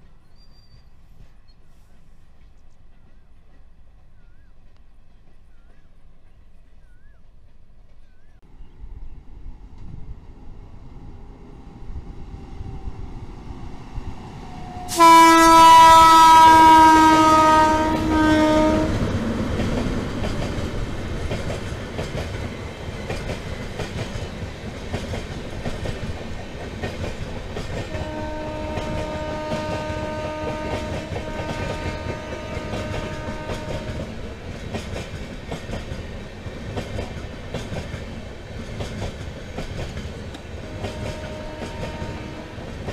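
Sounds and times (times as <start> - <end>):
train horn blast: 14.6 - 19.1, 27.8 - 34.2, 40.5 - 42.9
train wheels clacking on track: 14.9 - 42.9.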